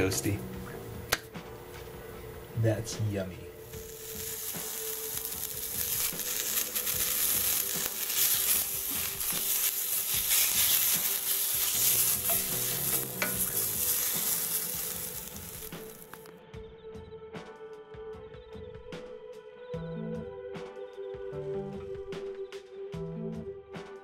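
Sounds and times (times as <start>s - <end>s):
sausages sizzling in a pan: 3.6s - 16.3s.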